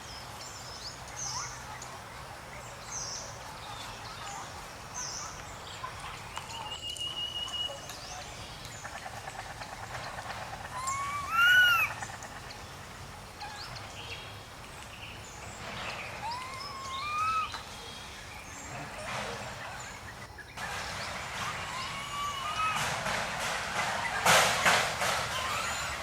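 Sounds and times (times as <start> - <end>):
faint chirps: 0.0 - 22.8
monkey coo calls: 8.7 - 14.0, 16.0 - 17.8, 18.6 - 26.0.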